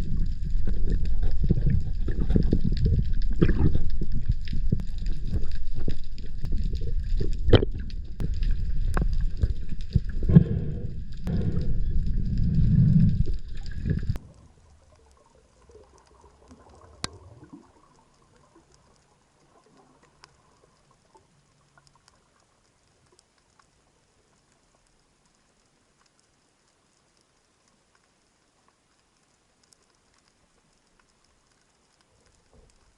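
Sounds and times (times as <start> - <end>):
water rushing and sloshing: 0.0 - 15.2.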